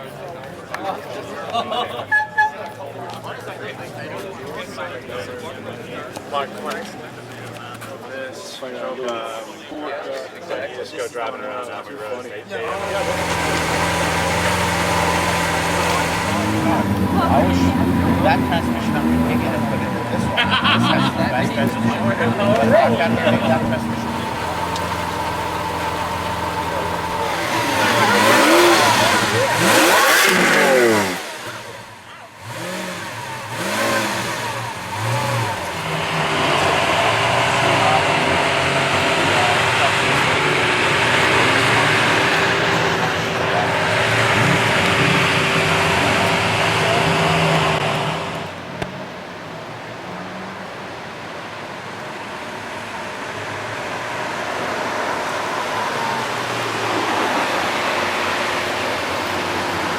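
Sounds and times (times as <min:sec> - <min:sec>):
street traffic noise: 0:00.0 - 0:59.9
car engine revving: 0:12.6 - 0:59.9.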